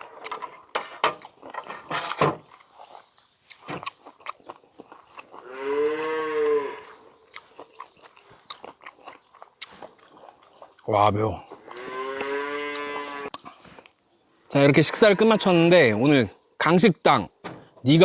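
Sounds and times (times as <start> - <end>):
person slurping and chewing noodles: 7.3 - 10.9
drawn-out call: 11.6 - 13.3.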